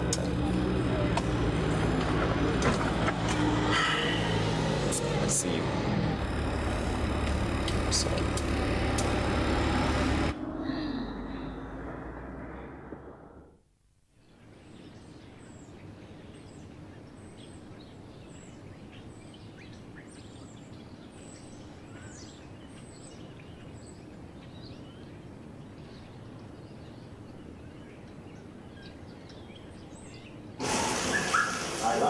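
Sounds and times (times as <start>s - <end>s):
outdoor background hum: 0.0s - 13.6s, 14.2s - 32.0s
small birds chirping: 14.2s - 32.0s.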